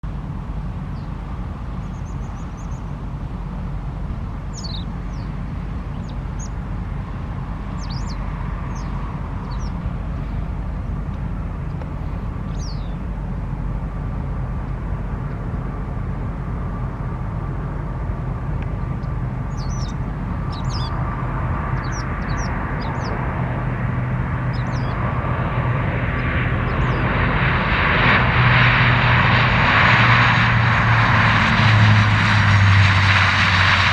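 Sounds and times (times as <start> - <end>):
distant jet engines rumbling: 0.0 - 33.9
small birds chirping: 0.8 - 3.0, 4.4 - 6.6, 7.6 - 10.5, 11.7 - 13.1, 18.6 - 23.5, 24.3 - 27.5.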